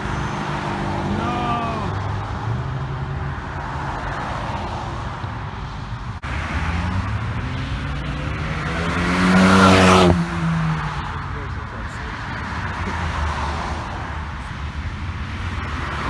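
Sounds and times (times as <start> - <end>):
car engines running: 0.0 - 16.0
car accelerating close by: 6.2 - 14.4.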